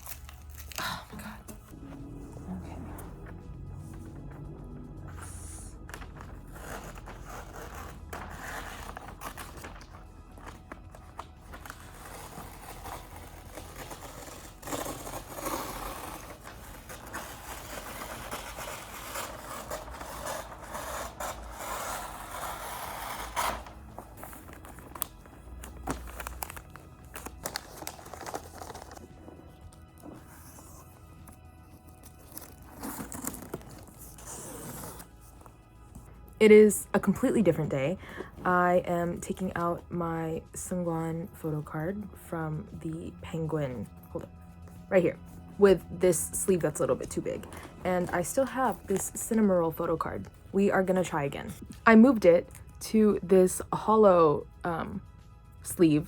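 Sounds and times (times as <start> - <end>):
wrapping paper rustling: 0.0 - 1.3, 5.9 - 35.2.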